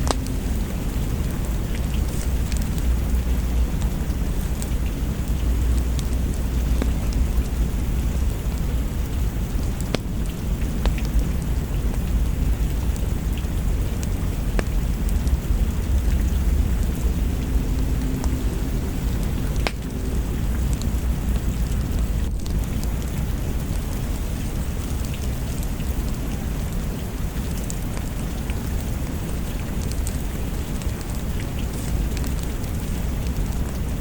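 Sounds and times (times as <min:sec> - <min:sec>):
deep low rumble: 0:00.0 - 0:34.0
steady rain falling: 0:00.0 - 0:34.0
sharp crackling pops: 0:09.7 - 0:11.2.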